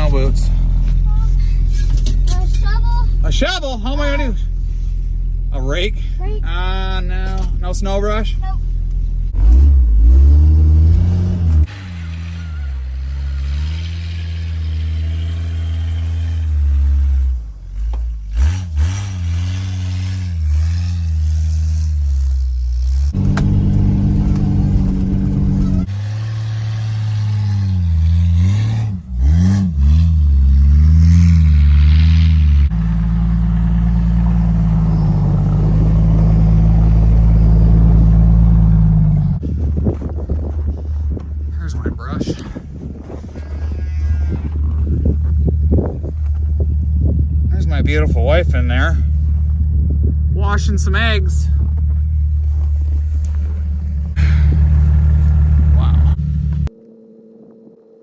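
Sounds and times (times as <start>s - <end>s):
engine revving under load: 9.2s - 40.8s, 42.2s - 56.7s.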